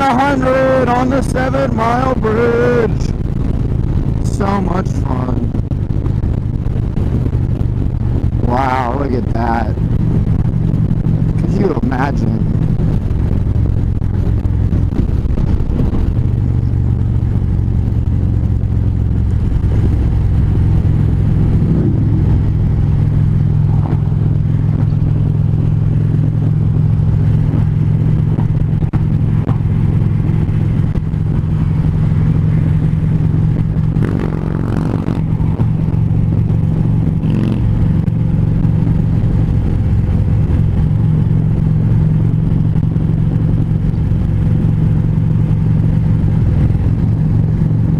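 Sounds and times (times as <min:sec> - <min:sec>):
motorcycle engine cruising: 0:00.0 - 0:47.9
road and wind noise: 0:00.0 - 0:47.9
vehicle passing: 0:18.6 - 0:42.3.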